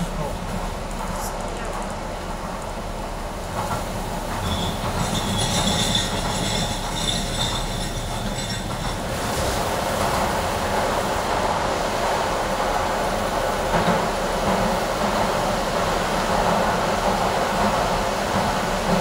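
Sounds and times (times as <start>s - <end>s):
train wheels rumbling on rail: 0.0s - 19.0s
faint wheel squeal: 4.4s - 8.7s.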